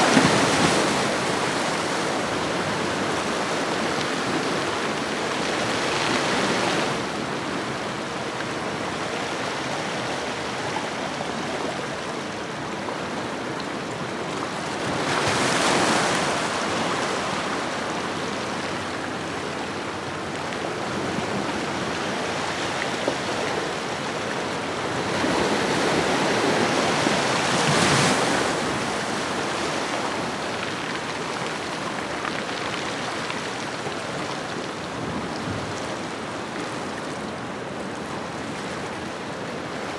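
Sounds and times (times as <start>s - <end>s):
large waves breaking: 0.0s - 10.6s, 14.3s - 37.3s
ocean waves washing onto shore: 0.0s - 39.9s.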